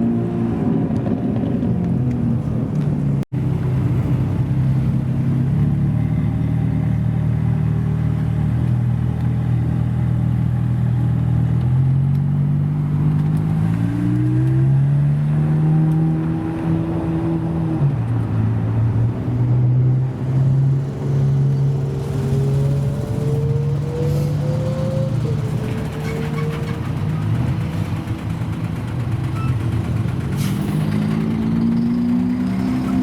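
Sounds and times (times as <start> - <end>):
car engine running at low revs: 0.0 - 33.0
sports car engine running: 26.8 - 33.0.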